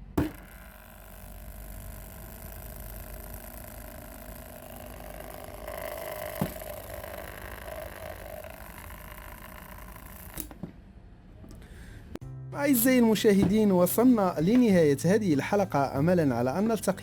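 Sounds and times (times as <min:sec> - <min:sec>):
drain pump humming: 0:00.0 - 0:10.6.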